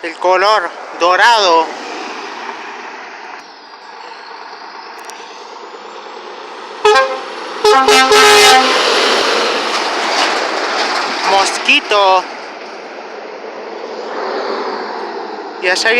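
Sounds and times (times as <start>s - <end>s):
truck rushing past: 0.0s - 15.9s
truck horn blasts: 6.8s - 8.9s.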